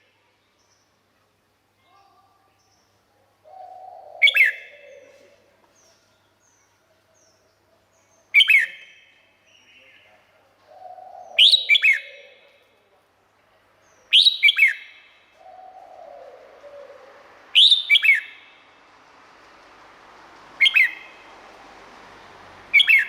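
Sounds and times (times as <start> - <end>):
bulbul singing: 10.7 - 12.5, 13.8 - 18.8, 19.9 - 23.0.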